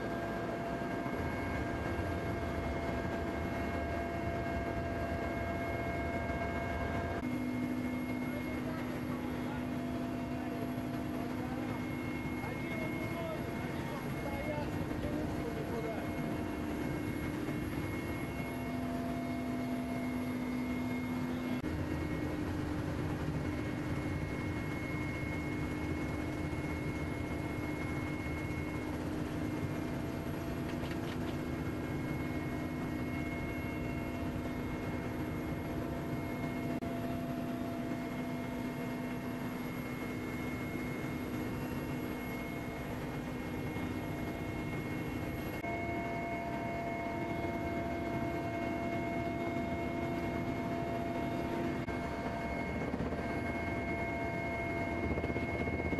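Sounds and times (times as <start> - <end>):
helicopter engines and rotors droning: 0.0 - 55.9.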